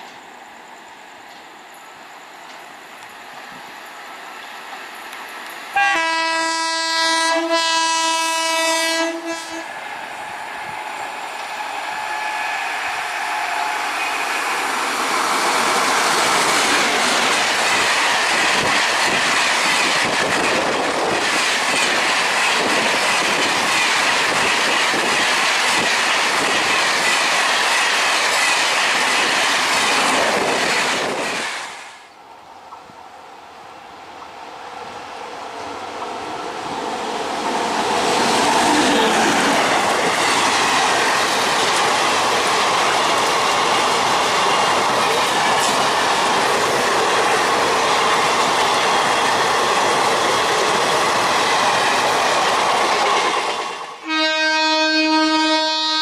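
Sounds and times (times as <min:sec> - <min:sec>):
train rushing past: 0:00.0 - 0:32.1, 0:33.3 - 0:56.0
train air horn blast: 0:05.7 - 0:09.7, 0:54.0 - 0:56.0.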